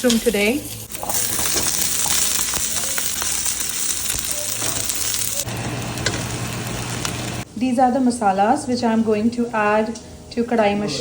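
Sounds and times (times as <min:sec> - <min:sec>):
mushrooms sizzling in oil: 0:00.0 - 0:07.5.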